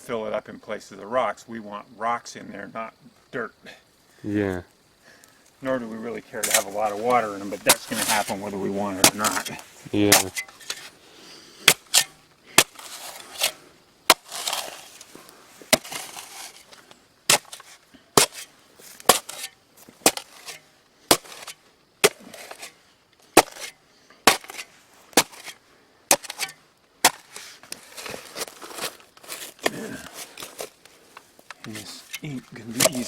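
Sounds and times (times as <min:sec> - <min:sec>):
scraping and loose dirt: 0:00.0 - 0:33.0
shovel striking soil: 0:06.4 - 0:10.9, 0:11.6 - 0:15.1, 0:15.7 - 0:30.8, 0:31.5 - 0:33.0.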